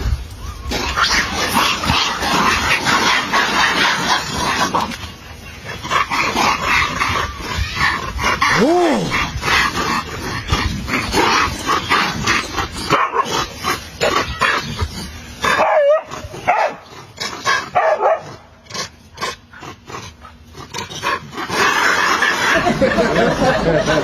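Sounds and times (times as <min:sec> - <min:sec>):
dog crying: 0:00.4 - 0:18.4
dog barking: 0:11.2 - 0:14.4, 0:15.5 - 0:16.8, 0:17.7 - 0:18.4.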